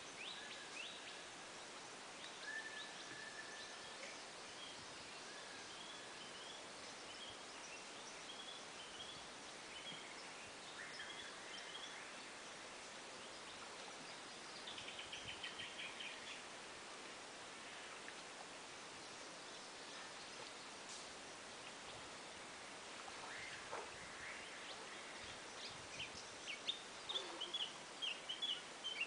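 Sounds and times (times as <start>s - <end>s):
faint steady hiss: 0.0s - 29.0s.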